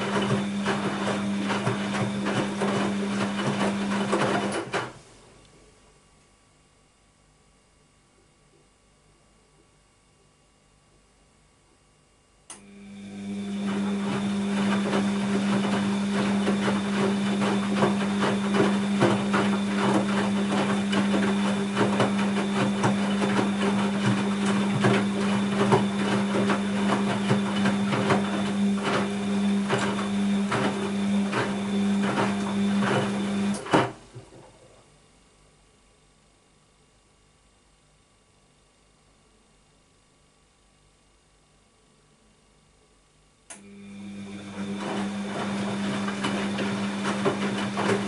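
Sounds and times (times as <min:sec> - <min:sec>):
wet laundry knocking and swishing: 0:00.0 - 0:05.0, 0:13.7 - 0:34.6, 0:44.6 - 0:48.0
washing machine motor hum: 0:00.0 - 0:05.8, 0:12.4 - 0:35.0, 0:43.5 - 0:48.0.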